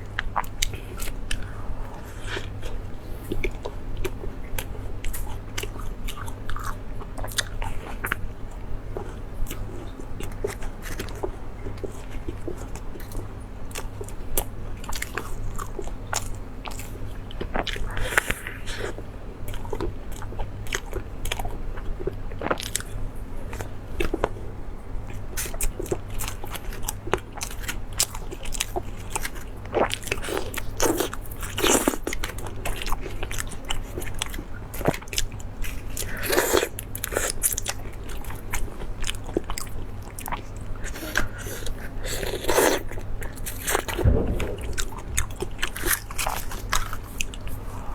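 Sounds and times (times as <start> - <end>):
person eating crunchy food: 39.0 - 46.9.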